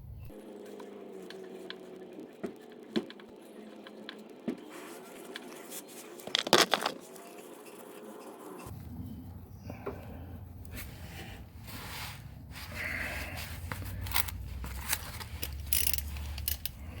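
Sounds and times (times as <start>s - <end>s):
tools rattling: 6.3s - 7.0s, 14.0s - 16.8s.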